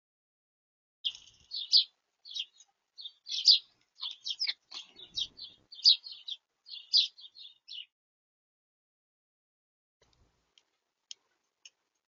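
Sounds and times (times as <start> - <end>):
small songbirds chirping: 1.0 - 7.9.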